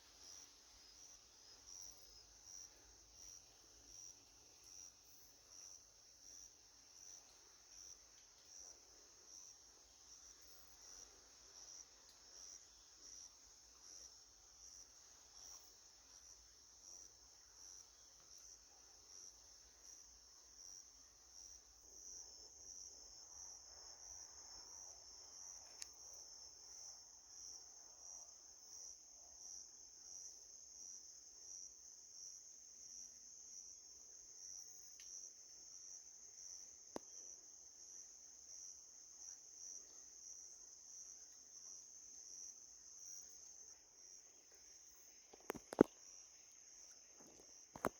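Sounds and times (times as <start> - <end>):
insect chorus trilling: 39.2 - 47.9.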